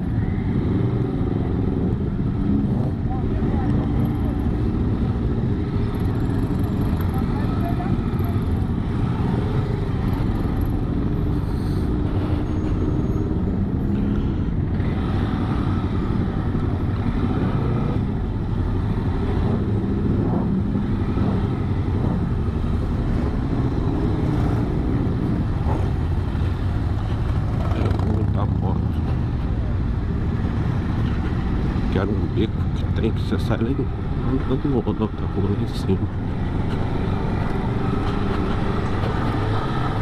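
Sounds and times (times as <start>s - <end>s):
motorcycle engine rumbling: 1.3s - 33.2s.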